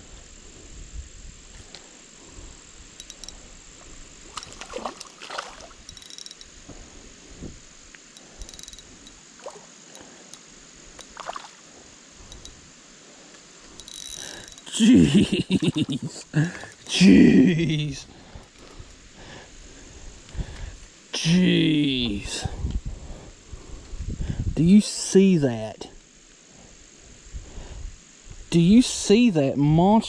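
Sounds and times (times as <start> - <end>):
insect chirring: 0.0 - 30.0
person exclaiming loudly: 14.7 - 18.0, 21.2 - 22.5
person breathing hard: 16.3 - 17.1, 18.0 - 20.9, 22.4 - 24.5.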